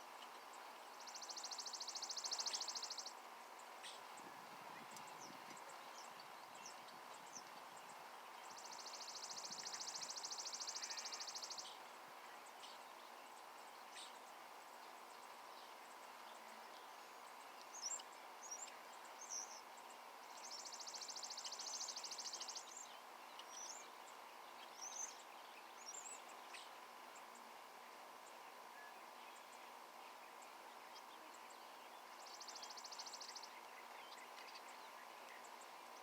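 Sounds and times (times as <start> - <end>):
faint steady hum: 0.0 - 36.0
songbirds chirping: 0.0 - 36.0
buzzy bird trills: 8.6 - 11.7.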